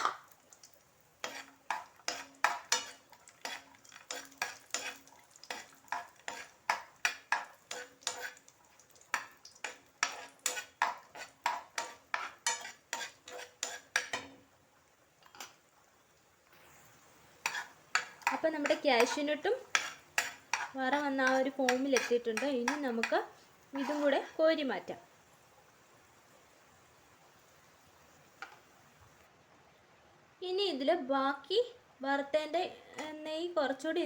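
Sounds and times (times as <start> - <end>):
nuts frying in fat: 0.0 - 29.3
spoon scraping a pan: 1.2 - 14.5, 15.2 - 15.6, 16.6 - 24.4.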